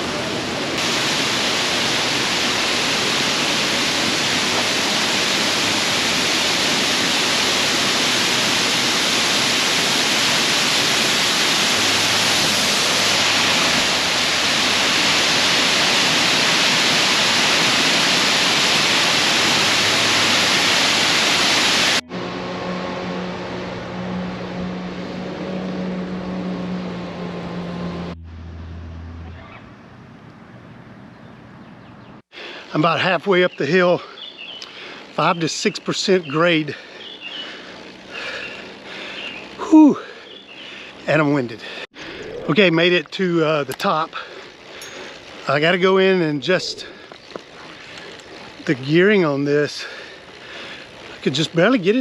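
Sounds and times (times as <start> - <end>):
rush of falling water: 0.0 - 22.0, 32.4 - 41.9, 42.6 - 52.0.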